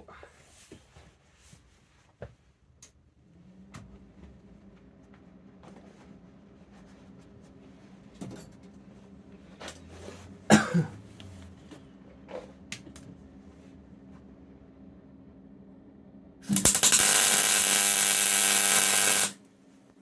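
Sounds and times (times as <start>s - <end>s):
steady low hum: 2.9s - 20.0s
person coughing: 10.5s - 11.0s.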